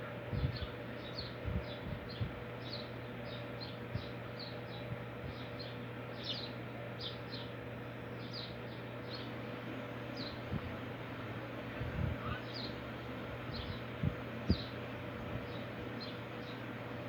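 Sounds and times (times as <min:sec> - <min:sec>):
small bird chirping: 0:00.4 - 0:07.5, 0:08.2 - 0:09.3, 0:13.5 - 0:13.8.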